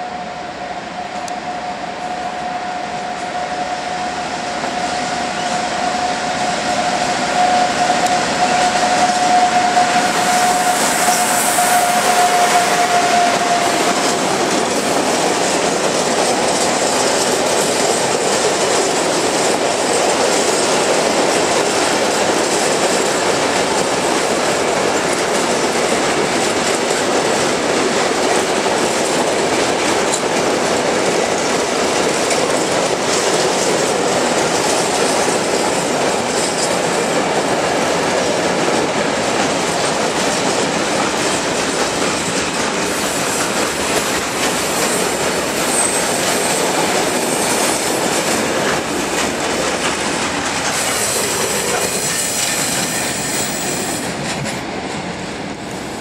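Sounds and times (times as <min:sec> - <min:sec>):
locomotive high tone: 0:00.0 - 0:15.8
train wheels on rails: 0:00.0 - 0:56.0.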